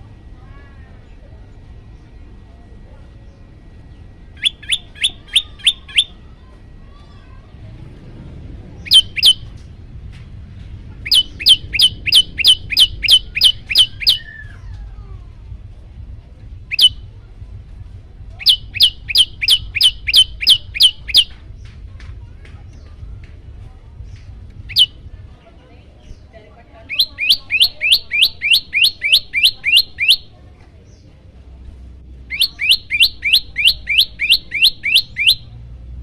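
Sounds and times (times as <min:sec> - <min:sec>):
bird calling sharp downward notes: 0:04.3 - 0:06.3, 0:08.8 - 0:09.6, 0:11.0 - 0:15.1, 0:16.7 - 0:17.0, 0:18.4 - 0:21.4, 0:24.7 - 0:25.0, 0:26.9 - 0:30.3, 0:32.2 - 0:35.6.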